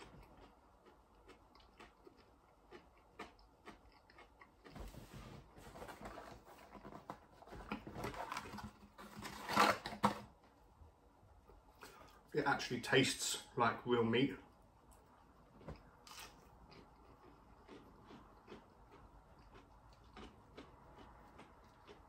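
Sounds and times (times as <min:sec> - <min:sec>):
chewing crispy food: 0:00.0 - 0:04.8, 0:14.5 - 0:22.0.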